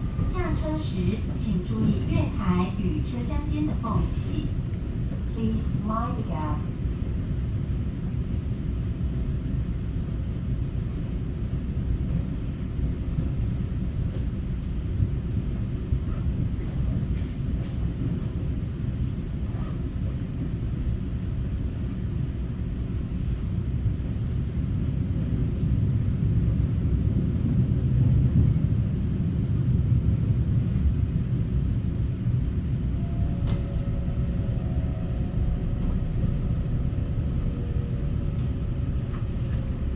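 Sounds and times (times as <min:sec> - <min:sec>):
train rumbling on rails: 0:00.0 - 0:39.9.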